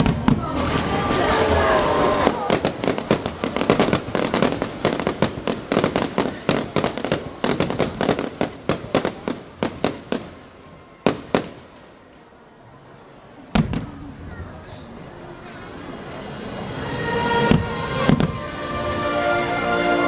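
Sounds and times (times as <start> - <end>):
fireworks bangs and cracks: 0.0 - 12.2, 13.5 - 14.6, 16.0 - 19.2
heavy firework boom: 13.5 - 14.3, 17.5 - 18.4.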